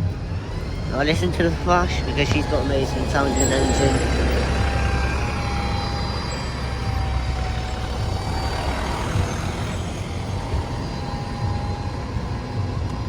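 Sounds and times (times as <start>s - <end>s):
diesel bus engine pulling away: 0.0s - 13.0s.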